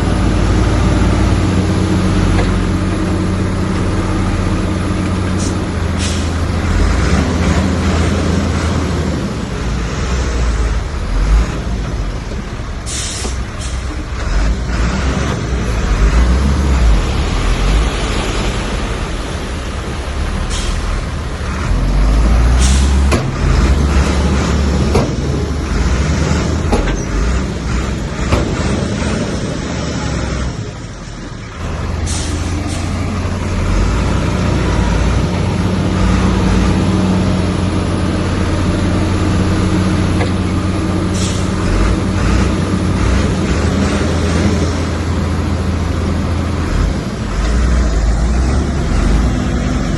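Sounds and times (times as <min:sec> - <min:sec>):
heavy diesel machinery working: 0:00.0 - 0:49.9.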